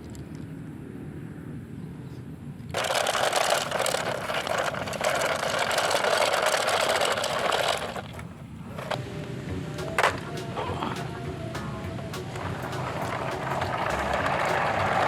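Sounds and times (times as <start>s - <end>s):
toy truck wheels rattling: 2.7s - 9.1s, 9.8s - 15.0s.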